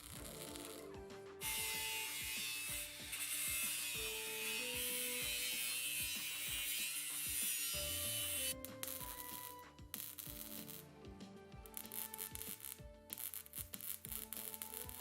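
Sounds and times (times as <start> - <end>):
background music with held notes: 0.0 - 15.0
workshop tool rasping: 1.4 - 10.8.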